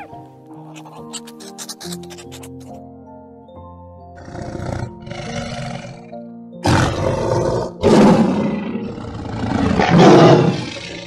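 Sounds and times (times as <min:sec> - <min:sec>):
tiger roaring and snarling: 0:04.2 - 0:11.0.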